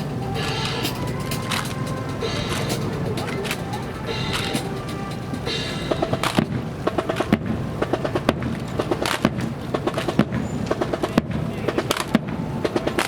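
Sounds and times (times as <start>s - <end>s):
rifles clattering and slapped: 8.2s - 12.2s.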